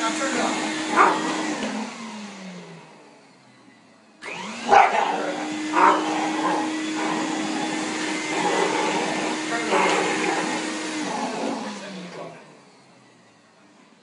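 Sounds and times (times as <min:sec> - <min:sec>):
vacuum cleaner motor whine: 0:00.0 - 0:14.0
dog barking: 0:00.9 - 0:01.5, 0:04.6 - 0:07.3.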